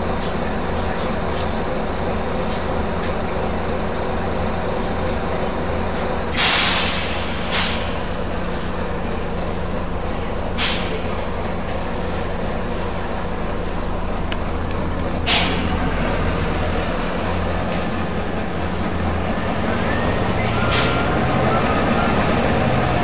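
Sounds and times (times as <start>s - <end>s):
bus engine droning: 0.0s - 23.0s
compressed air hissing: 6.4s - 8.1s, 10.6s - 11.1s.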